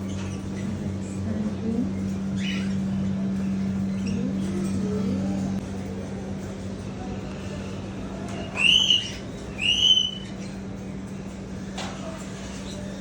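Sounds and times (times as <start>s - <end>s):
steady low hum: 0.0s - 13.0s
parrot whistled calls: 8.5s - 10.5s.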